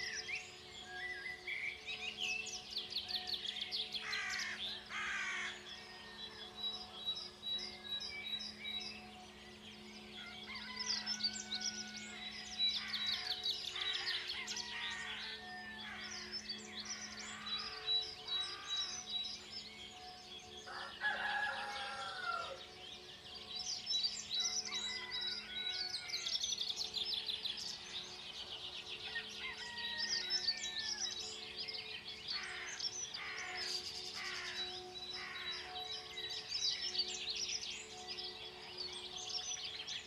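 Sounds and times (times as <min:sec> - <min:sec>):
faint low drone: 0:00.0 - 0:21.0
songbirds chirping and trilling: 0:00.0 - 0:40.0.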